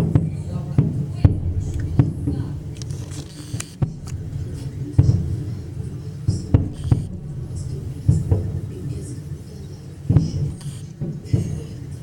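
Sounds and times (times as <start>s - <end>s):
continuous low rumble: 0.9s - 10.9s
fireworks booming: 1.2s - 9.5s.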